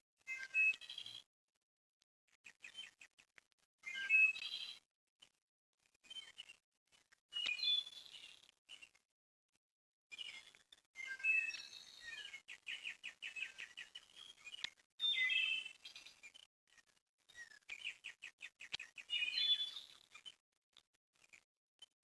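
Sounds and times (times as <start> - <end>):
small songbirds chirping: 11.0 - 16.2, 17.3 - 20.3.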